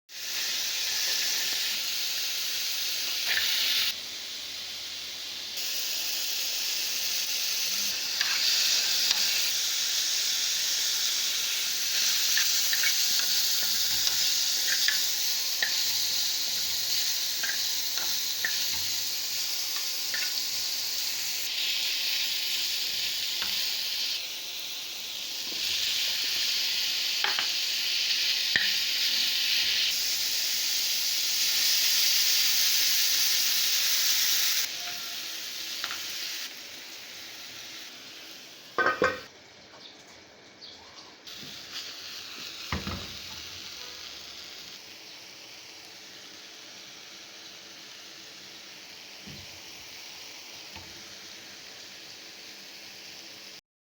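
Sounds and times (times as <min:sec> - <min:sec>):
chicken sizzling in hot oil: 0:00.1 - 0:39.3, 0:41.1 - 0:53.6.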